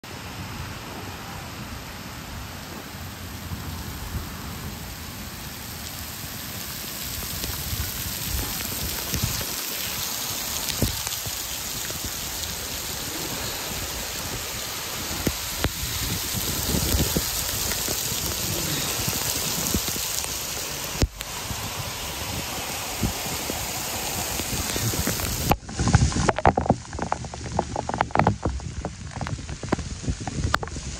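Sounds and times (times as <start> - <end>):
heavy rain on pavement: 0.0 - 30.9
thumps and buffeting on microphone: 7.4 - 20.4, 21.0 - 30.9.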